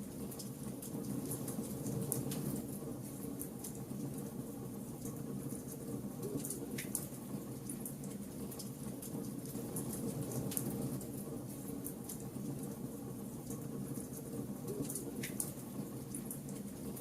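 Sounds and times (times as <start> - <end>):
wood fire crackling and popping: 13.5 - 16.8.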